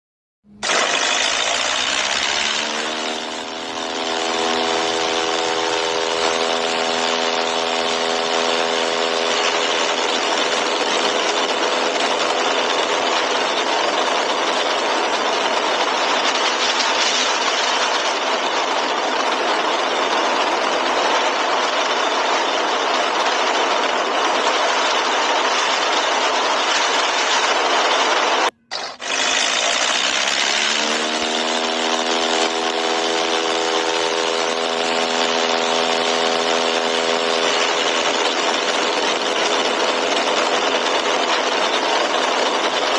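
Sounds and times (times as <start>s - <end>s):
propeller engine drone: 0.4s - 42.9s
rising pitched tone: 0.5s - 11.2s.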